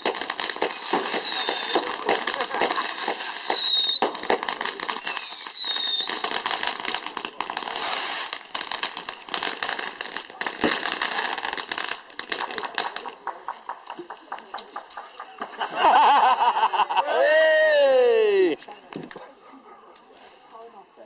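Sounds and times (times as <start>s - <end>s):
fireworks crackling and popping: 0.0s - 16.2s.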